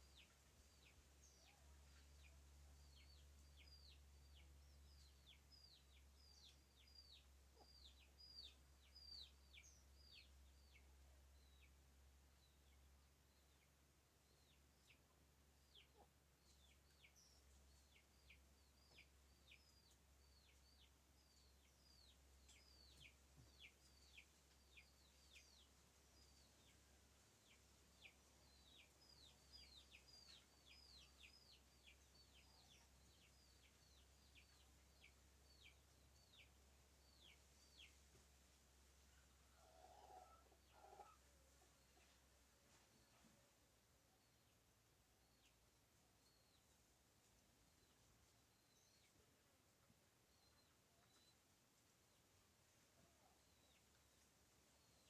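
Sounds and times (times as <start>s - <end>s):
faint birdsong: 0.0s - 55.0s.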